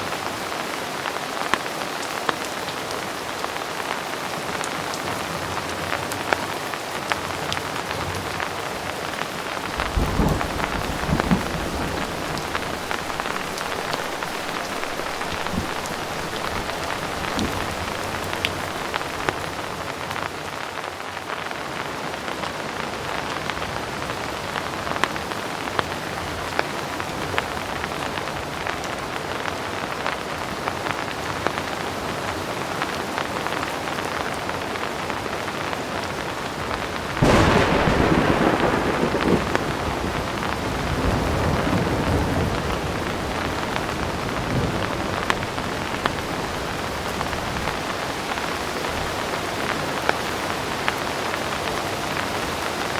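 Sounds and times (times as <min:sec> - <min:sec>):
heavy rain falling: 0:00.0 - 0:52.9
thunder rolling: 0:09.6 - 0:19.8, 0:37.2 - 0:49.3.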